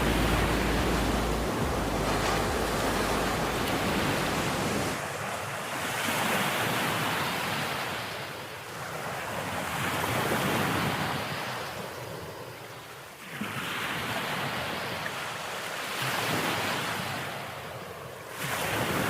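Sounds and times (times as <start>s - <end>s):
wind buffeting microphone: 0.0s - 5.0s
ocean waves breaking: 0.0s - 8.1s.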